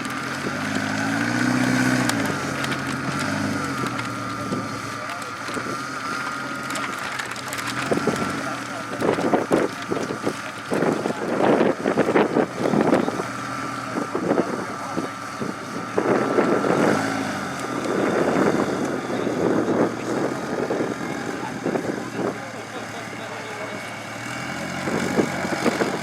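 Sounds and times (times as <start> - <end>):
engine revving in surges: 0.0 - 26.0
wind buffeting microphone: 7.7 - 22.5, 24.7 - 26.0.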